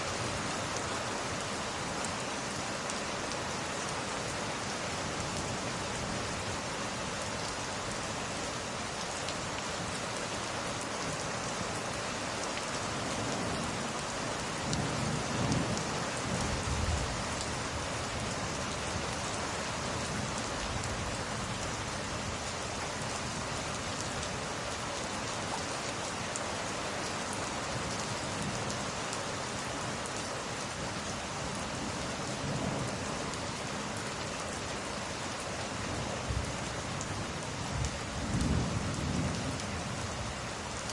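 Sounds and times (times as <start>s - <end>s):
heavy rain: 0.0s - 40.9s
low rumble of thunder: 14.6s - 18.3s, 37.6s - 40.4s.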